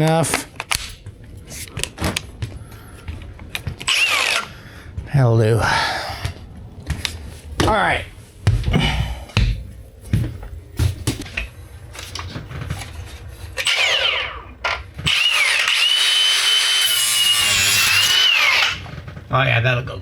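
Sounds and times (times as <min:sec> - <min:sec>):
angle grinder whine: 0:02.4 - 0:05.0, 0:13.6 - 0:19.2.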